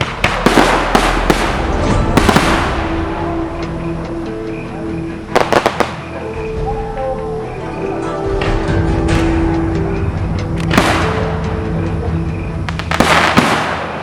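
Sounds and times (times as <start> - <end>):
fireworks bangs with crackling: 0.0 - 3.9, 5.3 - 6.0, 10.6 - 11.5, 12.7 - 14.0.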